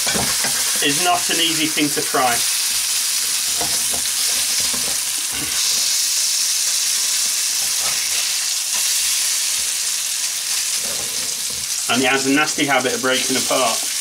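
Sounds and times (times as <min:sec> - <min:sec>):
food sizzling in oil: 0:00.0 - 0:14.0
metal spatula scraping pan: 0:07.6 - 0:09.1.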